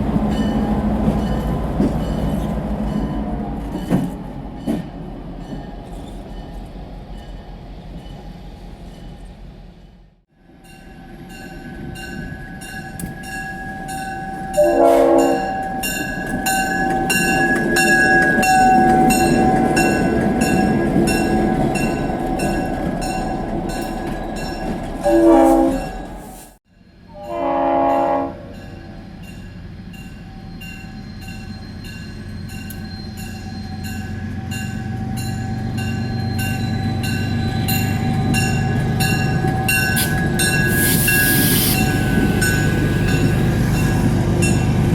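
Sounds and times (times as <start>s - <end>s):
train chime horn blasts: 12.6s - 22.6s, 25.0s - 26.4s, 27.1s - 28.9s
wheel squeal: 30.2s - 34.5s, 35.9s - 44.1s
train wheels clicking over rail joints: 35.2s - 44.9s.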